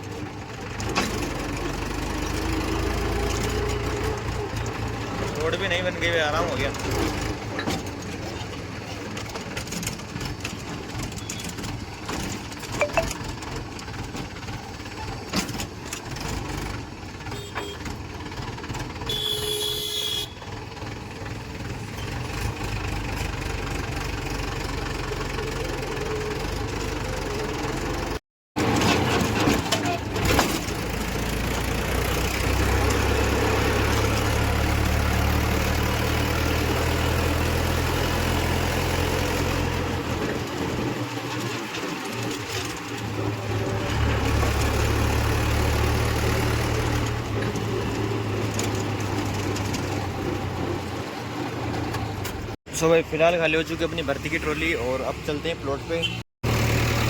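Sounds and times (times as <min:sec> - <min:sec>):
diesel engine running: 0:00.0 - 0:55.7
short high tone: 0:12.8 - 0:13.2.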